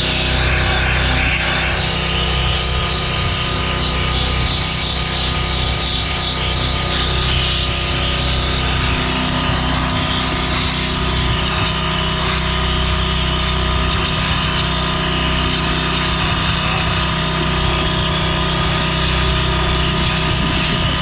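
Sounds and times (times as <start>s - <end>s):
pressure washer running hum: 0.0s - 21.0s.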